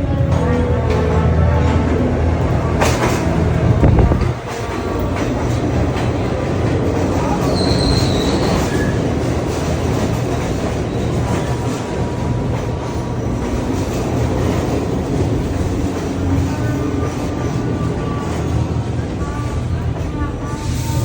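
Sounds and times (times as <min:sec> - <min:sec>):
train wheels rumbling on track: 0:00.0 - 0:21.0
high wheel squeal: 0:07.4 - 0:09.1.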